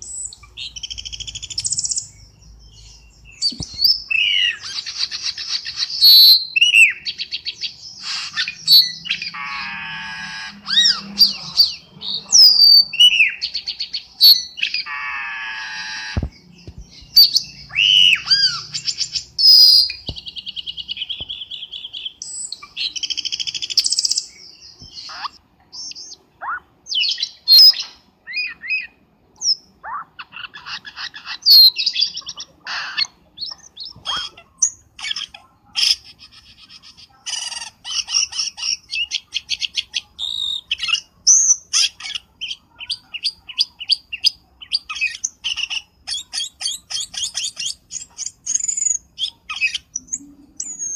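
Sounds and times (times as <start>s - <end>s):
bird calling whistled phrases: 17.2s - 20.0s.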